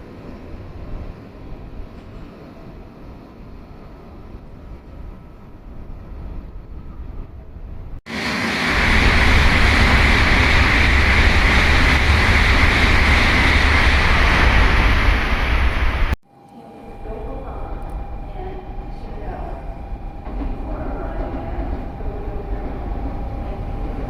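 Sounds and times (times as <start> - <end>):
high-speed train rushing by: 0.0 - 24.0
low rumble: 7.6 - 16.2, 16.9 - 24.0.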